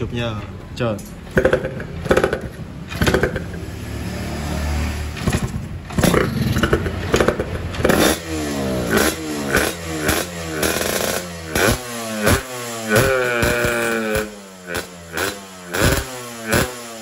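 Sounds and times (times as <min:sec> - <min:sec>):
two-stroke motorcycle engine revving: 0:01.3 - 0:17.0.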